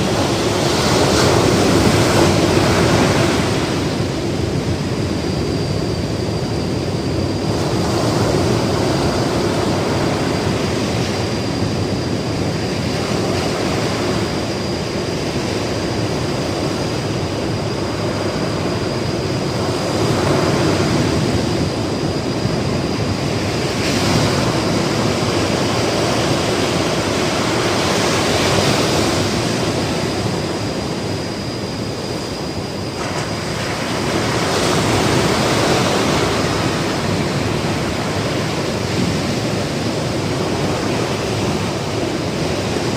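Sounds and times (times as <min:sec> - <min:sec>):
ocean waves breaking: 0:00.0 - 0:05.0, 0:33.0 - 0:42.9.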